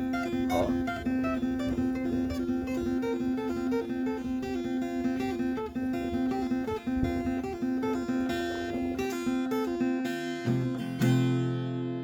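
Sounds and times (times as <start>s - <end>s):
held low note: 0.0s - 1.6s
plucked acoustic guitar melody: 0.0s - 12.0s.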